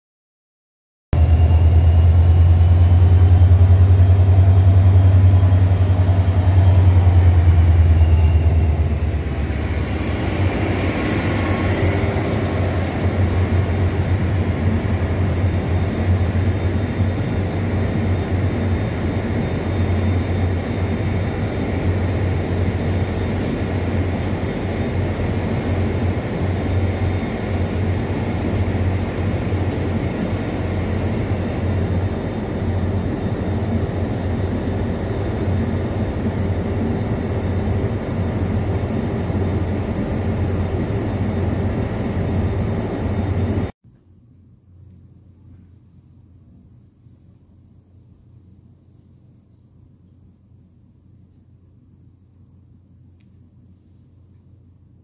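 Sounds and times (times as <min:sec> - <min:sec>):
diesel locomotive engine drone: 0:01.1 - 0:43.8
high whine gliding down: 0:01.2 - 0:43.7
passenger cars rolling on rails: 0:01.2 - 0:43.7.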